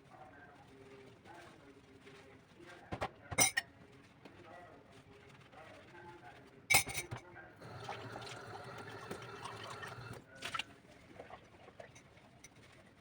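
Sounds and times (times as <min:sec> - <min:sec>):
dishes clinking: 0:06.7 - 0:10.2
water running from tap: 0:07.6 - 0:10.6.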